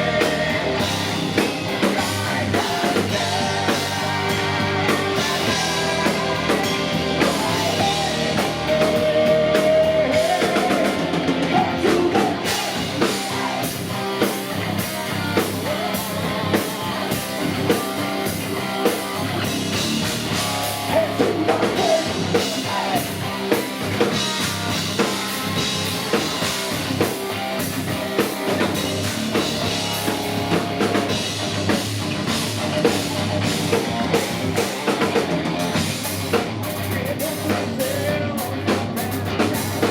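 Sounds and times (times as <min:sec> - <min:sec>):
person singing: 0:00.0 - 0:18.3, 0:20.6 - 0:24.2, 0:36.8 - 0:39.9
distorted electric guitars: 0:00.0 - 0:39.9
drum kit fast rhythm: 0:00.0 - 0:39.9.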